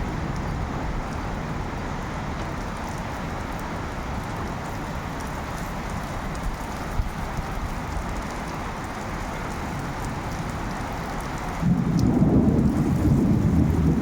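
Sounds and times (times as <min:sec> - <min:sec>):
rain falling: 0:00.0 - 0:14.0
thunder rumbling: 0:11.5 - 0:14.0.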